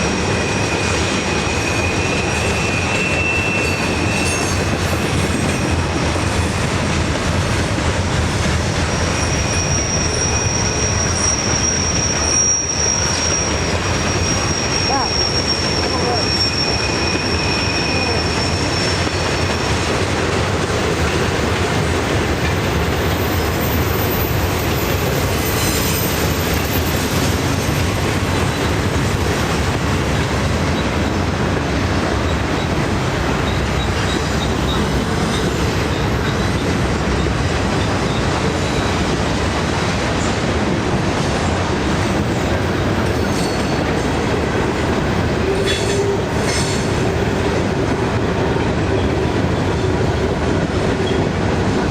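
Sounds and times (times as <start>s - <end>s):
wheels squealing: 0.0s - 6.6s, 8.7s - 19.8s, 22.8s - 29.3s
train wheels rumbling on rail: 0.0s - 51.9s.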